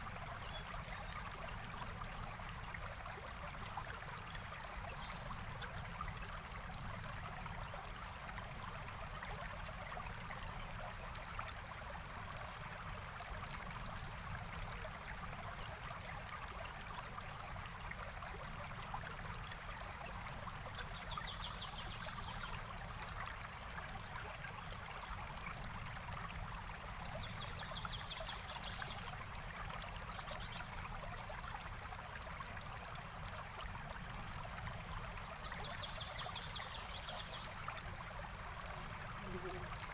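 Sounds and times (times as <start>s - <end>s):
stream flowing over rocks: 30.9s - 39.9s.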